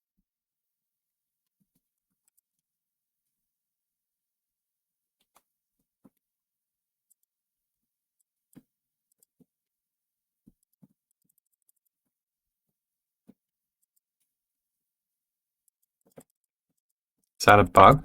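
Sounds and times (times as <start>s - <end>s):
computer mouse and keys clicking: 1.5s - 2.7s, 5.2s - 6.3s, 7.0s - 7.4s, 8.2s - 9.6s, 10.5s - 12.0s, 13.3s - 14.3s, 15.6s - 17.4s.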